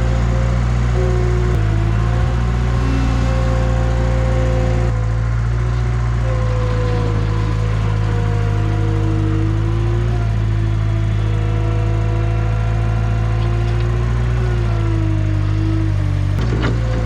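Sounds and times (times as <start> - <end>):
skid steer engine running: 0.0 - 17.0.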